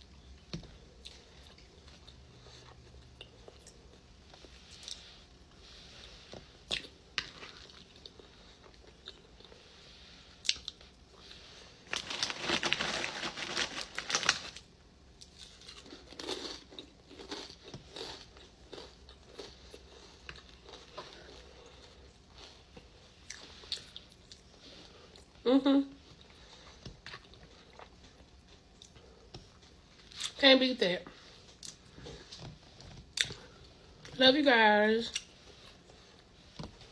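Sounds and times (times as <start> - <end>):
person chewing with wet smacks: 0.4 - 5.0, 6.6 - 9.6, 10.4 - 10.9, 15.2 - 24.5, 26.1 - 30.4, 31.5 - 33.6.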